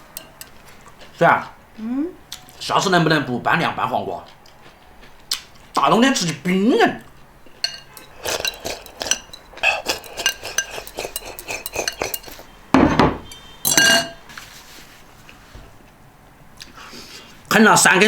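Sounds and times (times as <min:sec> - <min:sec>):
utensils clinking on dishes: 0:00.1 - 0:01.0, 0:07.5 - 0:14.2
loud ringing knocks: 0:12.8 - 0:13.3.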